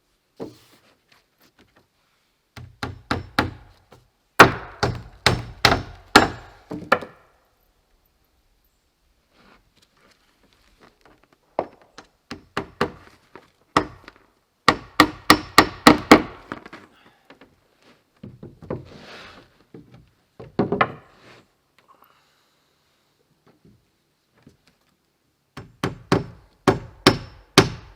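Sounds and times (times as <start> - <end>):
soft rustle: 0.0 - 2.4, 8.7 - 11.5
hammer driving nails into wood: 2.6 - 3.8, 4.4 - 7.2, 14.7 - 16.5, 25.6 - 27.9.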